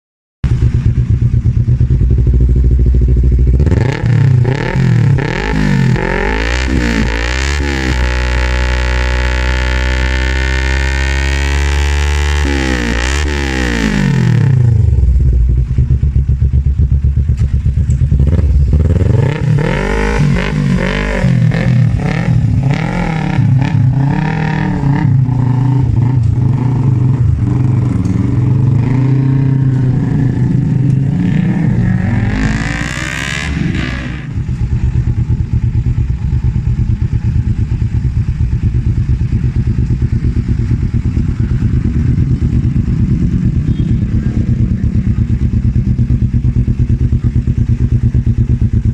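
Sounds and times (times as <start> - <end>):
motorcycle engine revving: 0.4 - 48.9.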